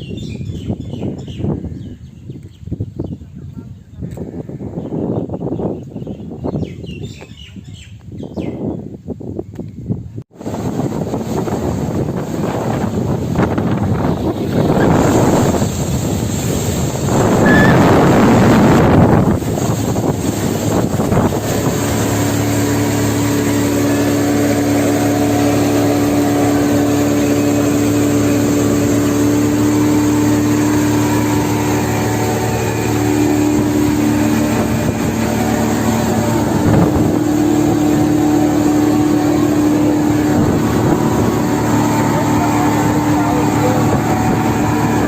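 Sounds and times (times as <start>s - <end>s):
speedboat engine running: 10.3s - 45.0s
rush of noise: 10.4s - 45.0s.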